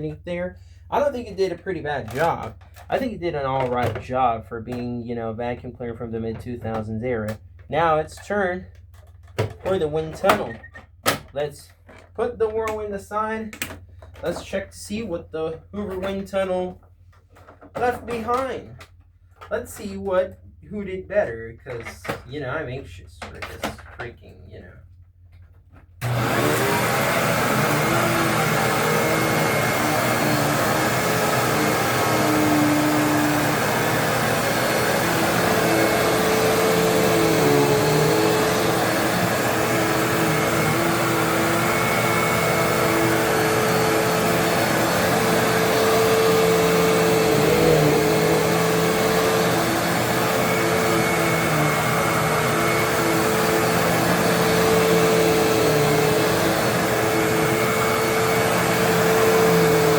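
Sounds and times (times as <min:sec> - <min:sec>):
vacuum cleaner running: 0:26.0 - 0:59.9.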